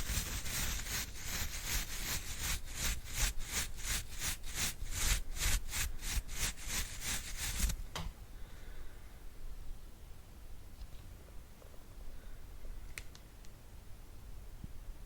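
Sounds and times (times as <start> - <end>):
brush swishing over microphone: 0.0 - 7.8.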